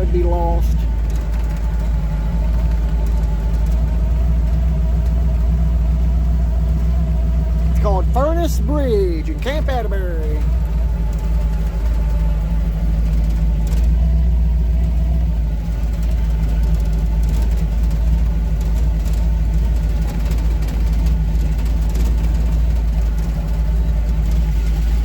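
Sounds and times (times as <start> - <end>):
car engine running at low speed: 0.0 - 25.0.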